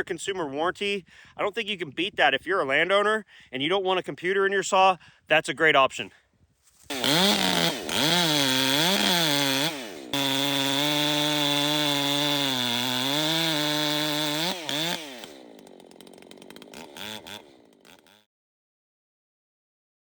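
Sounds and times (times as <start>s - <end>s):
chainsaw revving: 6.9s - 18.3s.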